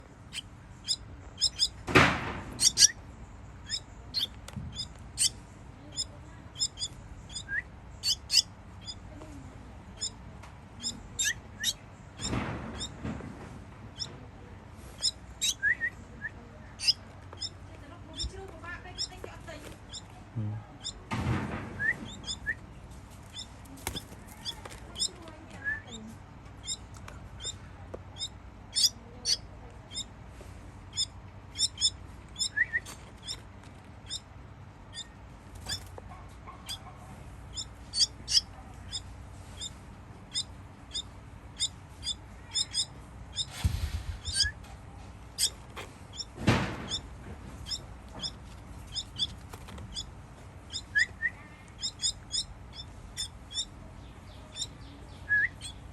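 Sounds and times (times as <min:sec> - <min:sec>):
baby bird chirping: 0:00.2 - 0:01.9, 0:02.5 - 0:13.0, 0:13.9 - 0:14.2, 0:14.8 - 0:21.1, 0:21.8 - 0:22.7, 0:23.3 - 0:30.2, 0:30.9 - 0:55.9
thumps: 0:45.4 - 0:50.0.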